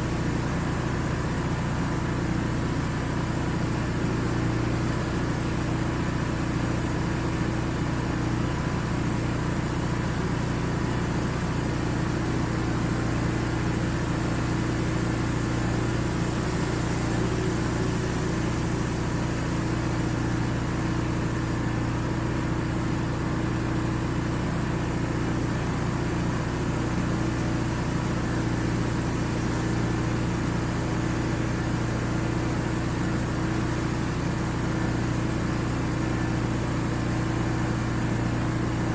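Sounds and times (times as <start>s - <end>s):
pressure washer engine running: 0.0s - 38.9s
hiss of spray: 14.5s - 20.5s.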